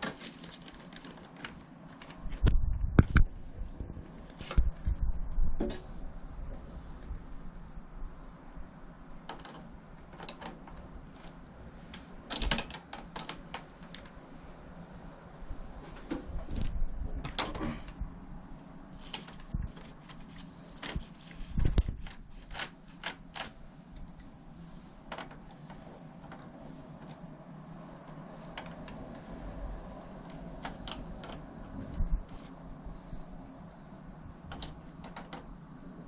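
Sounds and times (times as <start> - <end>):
plastic parts clicking and knocking: 9.2 - 11.4, 12.0 - 14.2, 25.1 - 27.2, 34.5 - 35.5.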